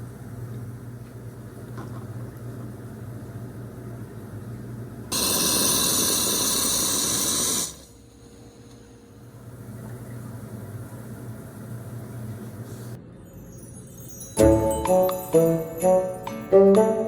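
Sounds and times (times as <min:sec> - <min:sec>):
loud steady hiss: 0:05.1 - 0:08.0.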